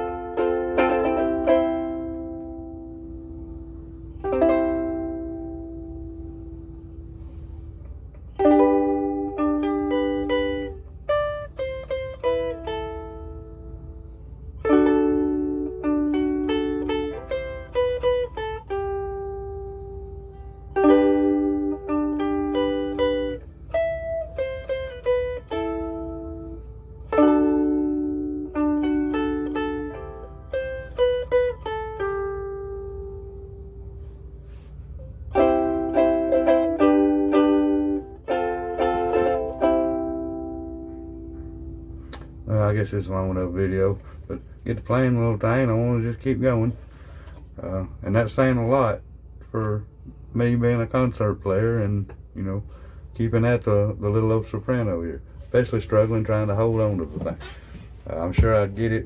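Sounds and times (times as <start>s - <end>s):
ukulele played fingerstyle: 0.0s - 42.5s, 55.4s - 59.0s.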